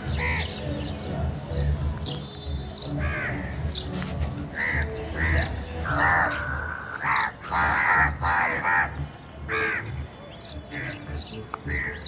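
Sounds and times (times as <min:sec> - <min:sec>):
crows cawing: 0:00.1 - 0:00.5, 0:03.0 - 0:03.4, 0:04.5 - 0:09.9, 0:11.7 - 0:12.0.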